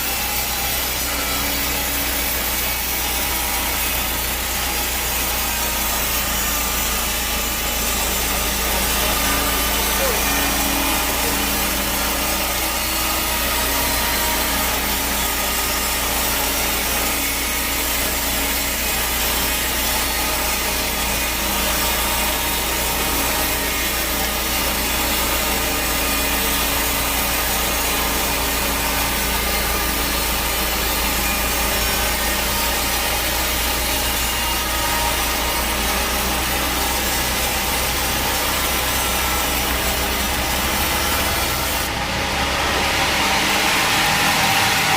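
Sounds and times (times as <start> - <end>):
bandsaw blade cutting log: 0.0 - 44.9
low motor hum: 6.0 - 16.3.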